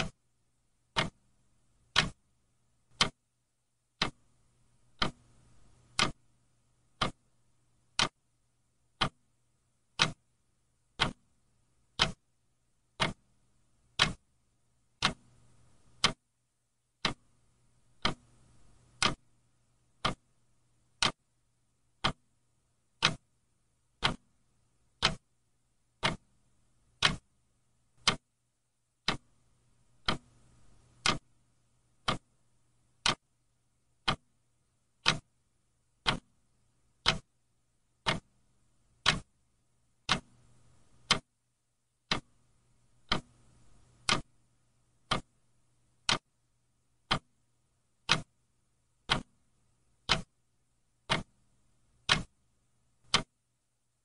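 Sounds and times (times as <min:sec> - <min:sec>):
clock ticking: 0:00.8 - 0:01.2, 0:01.8 - 0:02.3, 0:02.9 - 0:03.2, 0:03.9 - 0:08.2, 0:08.8 - 0:12.2, 0:12.8 - 0:14.3, 0:14.9 - 0:16.2, 0:17.0 - 0:22.3, 0:22.9 - 0:23.3, 0:23.9 - 0:25.3, 0:26.0 - 0:26.4, 0:27.0 - 0:27.3, 0:28.0 - 0:28.3, 0:29.0 - 0:32.4, 0:33.0 - 0:33.3, 0:34.0 - 0:35.3, 0:36.0 - 0:39.4, 0:40.0 - 0:41.3, 0:42.0 - 0:42.4, 0:43.0 - 0:44.4, 0:45.0 - 0:45.4, 0:46.0 - 0:46.4, 0:47.0 - 0:47.4, 0:48.0 - 0:48.4, 0:49.0 - 0:50.4, 0:51.0 - 0:52.4, 0:53.0 - 0:53.4.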